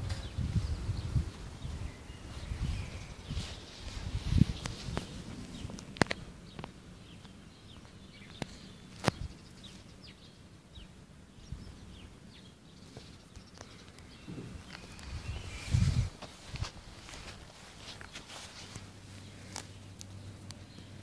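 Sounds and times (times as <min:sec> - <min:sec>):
small birds chirping: 0:00.0 - 0:21.0
low thuds: 0:14.2 - 0:16.8.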